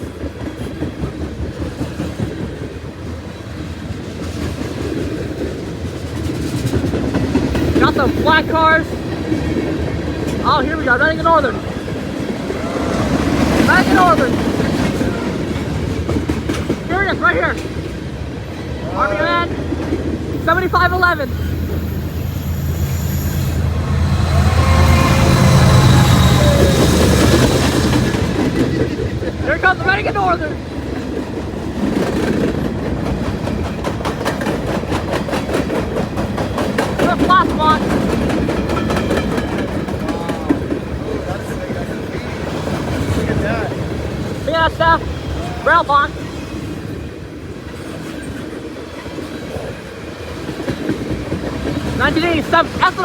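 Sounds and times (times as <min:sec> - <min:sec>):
train wheels rumbling on rail: 0:00.0 - 0:53.0
train wheels squealing: 0:20.4 - 0:29.3.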